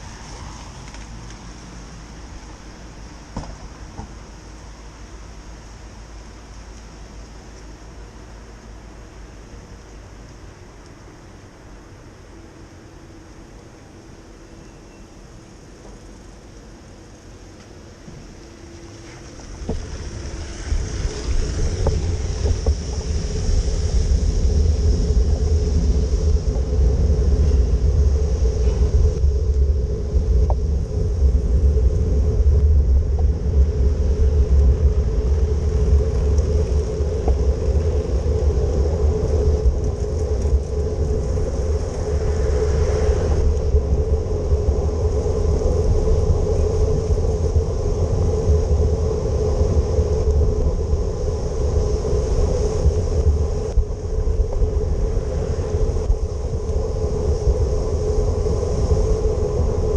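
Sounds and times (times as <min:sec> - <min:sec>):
tyres hissing on wet road: 0:00.0 - 0:09.5, 0:15.4 - 0:59.9
wind rumble on microphone: 0:00.0 - 0:59.9.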